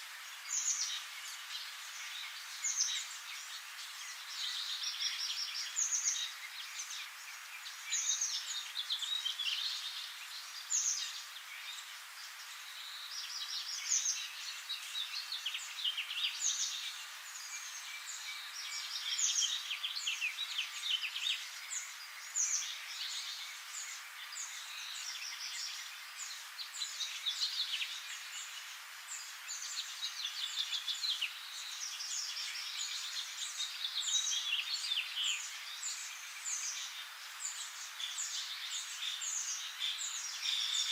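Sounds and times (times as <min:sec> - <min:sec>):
songbirds singing and chirping: 0:00.0 - 0:40.9.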